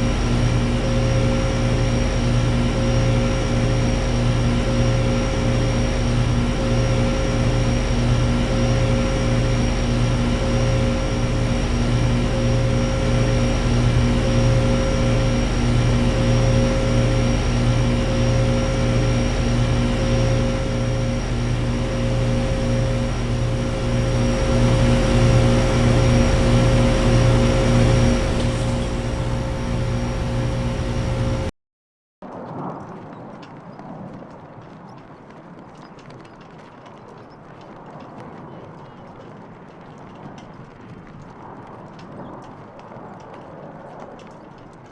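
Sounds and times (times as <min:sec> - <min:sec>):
compressor hum: 0:00.0 - 0:31.5
condenser fans rushing: 0:00.0 - 0:31.5
pulsing low drone: 0:00.0 - 0:31.5.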